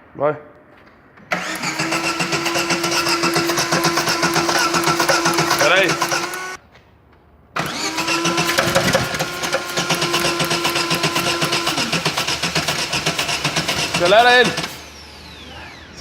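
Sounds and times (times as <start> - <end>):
car engine starting: 1.3 - 6.6, 7.6 - 16.0
engine idling with ticking: 9.6 - 14.8.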